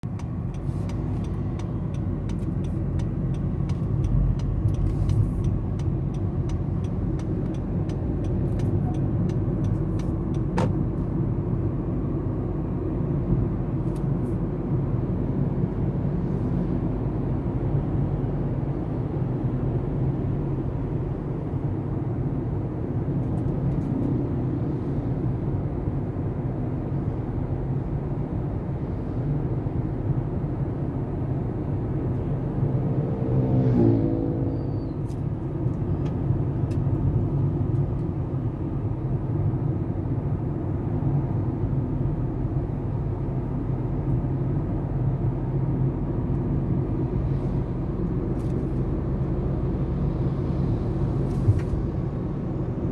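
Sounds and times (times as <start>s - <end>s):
vehicle engine and road rumble: 0.0s - 52.9s
light fast ticking: 0.1s - 10.5s.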